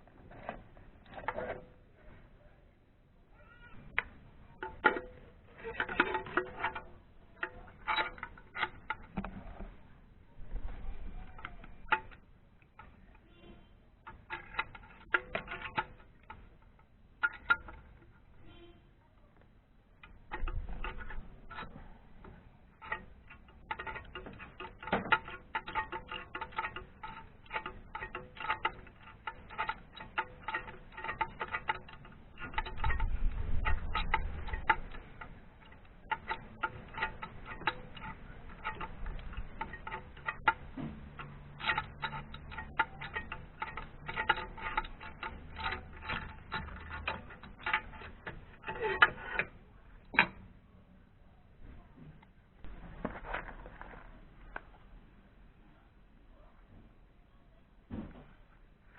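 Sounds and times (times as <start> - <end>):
ratchet wrench clicking: 22.8 - 49.5
metal tools clinking: 22.8 - 50.4.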